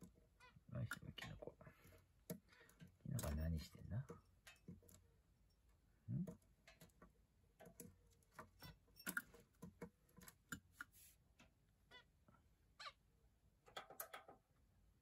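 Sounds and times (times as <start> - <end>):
birds pecking on glass: 0.0 - 11.6.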